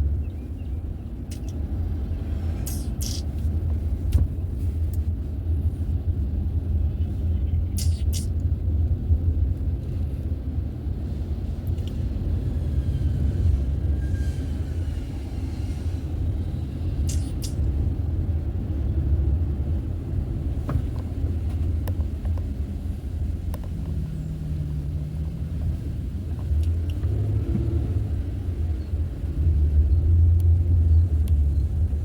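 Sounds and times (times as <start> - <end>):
car driving rumble: 0.0 - 32.0
short sharp clicks: 7.8 - 8.4, 17.1 - 17.6.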